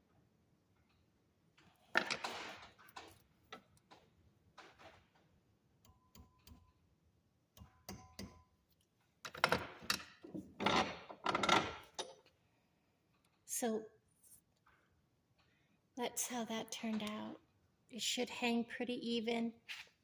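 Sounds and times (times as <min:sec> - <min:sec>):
hand tools clicking and tapping: 0:07.6 - 0:08.4.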